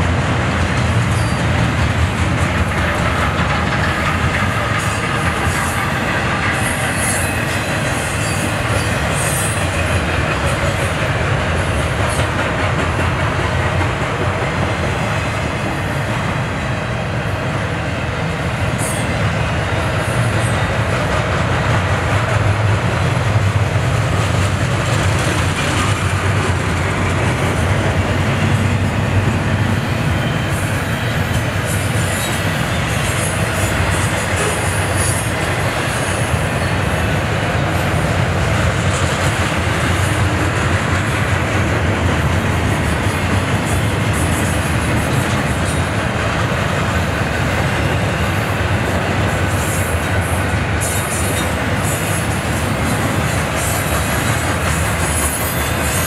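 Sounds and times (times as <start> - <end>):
freight train wheels rumbling: 0.0 - 56.0
high wheel squeals: 4.8 - 9.8, 29.7 - 36.7, 54.9 - 56.0.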